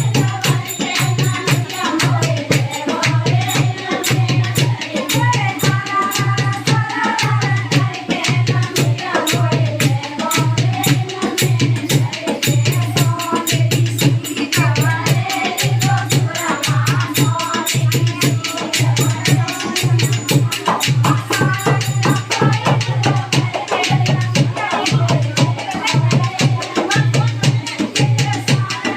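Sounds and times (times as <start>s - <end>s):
shaker percussion: 0.0s - 28.9s.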